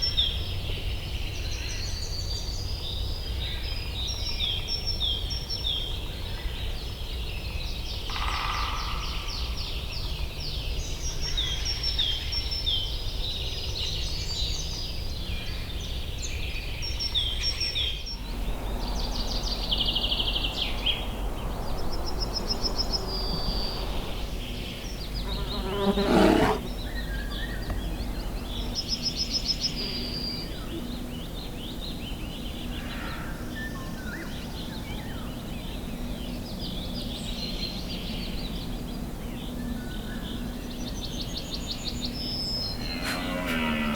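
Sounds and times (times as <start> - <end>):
birds singing and chirping: 13.9 - 43.5
steady low rumble: 18.0 - 25.6
loud bird call: 18.2 - 27.2.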